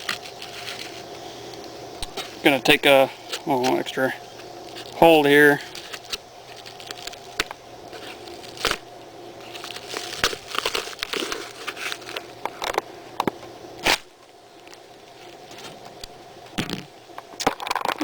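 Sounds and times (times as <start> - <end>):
wrapping crinkling and tearing: 0.0 - 12.8, 13.8 - 16.2.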